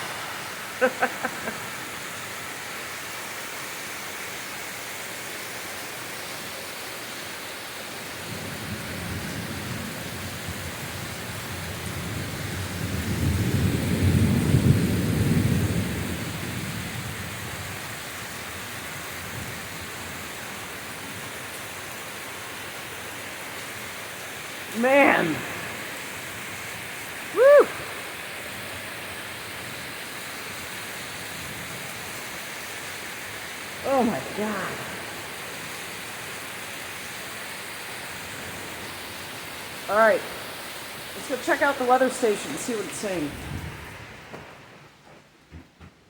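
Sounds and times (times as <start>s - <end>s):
torrential rain pouring: 0.0s - 46.0s
thunder rolling: 8.3s - 17.7s, 43.2s - 45.8s.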